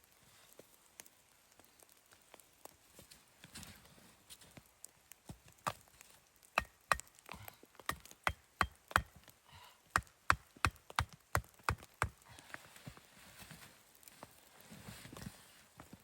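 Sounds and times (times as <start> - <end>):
wood being chopped: 6.6 - 9.3, 9.9 - 12.2.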